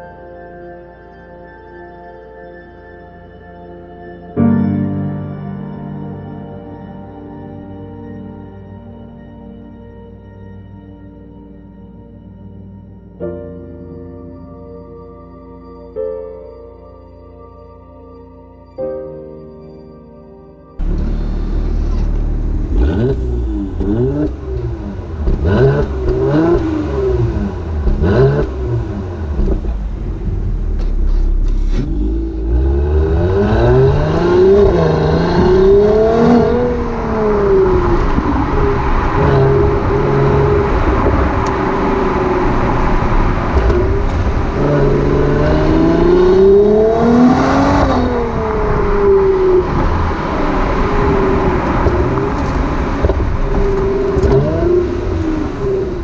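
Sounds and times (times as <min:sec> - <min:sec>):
car accelerating through gears: 0:20.8 - 0:56.0
car engine throttle blips: 0:20.8 - 0:56.0.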